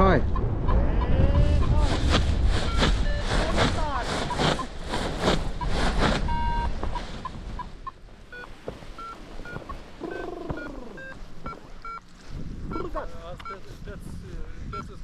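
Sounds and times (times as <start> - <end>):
wind noise on microphone: 0.0 - 8.4, 9.0 - 15.0
variometer beeping: 2.7 - 3.2, 6.3 - 12.1, 12.7 - 13.7, 14.7 - 15.0.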